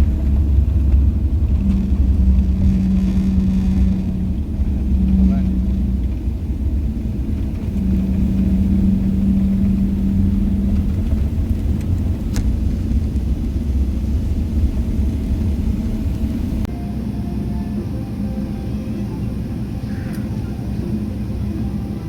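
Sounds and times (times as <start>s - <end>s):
aircraft cabin rumble: 0.0s - 22.0s
steady hum: 0.0s - 22.0s.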